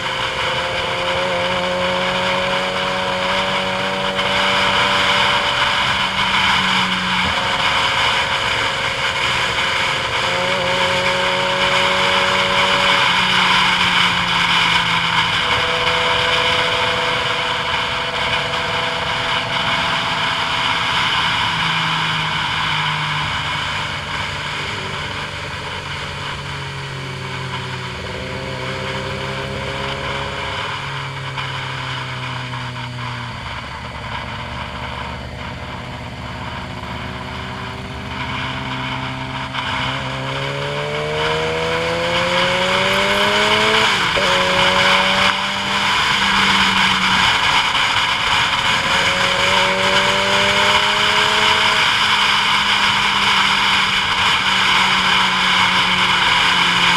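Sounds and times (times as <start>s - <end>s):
vehicle engine running: 0.0s - 56.9s.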